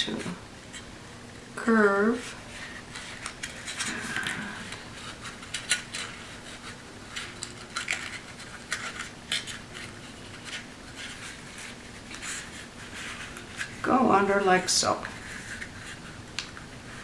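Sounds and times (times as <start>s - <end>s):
paper tapping and crinkling: 2.6s - 13.8s.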